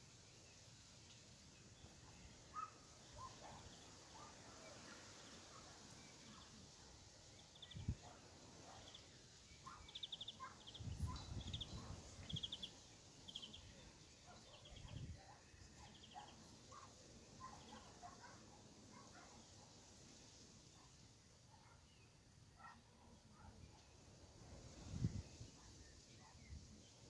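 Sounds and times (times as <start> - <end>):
bird trilled chirps: 9.6 - 13.8.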